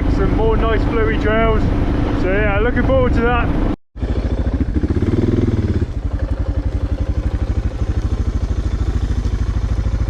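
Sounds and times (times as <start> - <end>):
motorcycle engine running: 3.5 - 10.0.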